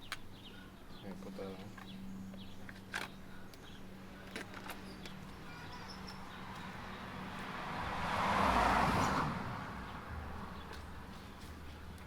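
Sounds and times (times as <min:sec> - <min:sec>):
car passing by: 0:06.0 - 0:11.6.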